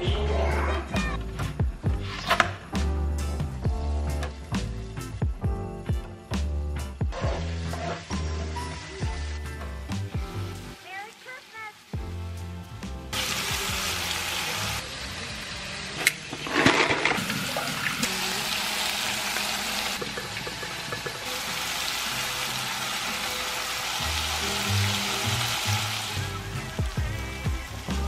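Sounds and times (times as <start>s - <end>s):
faint background music: 0.0s - 28.0s
vegetables sizzling in oil: 7.3s - 28.0s.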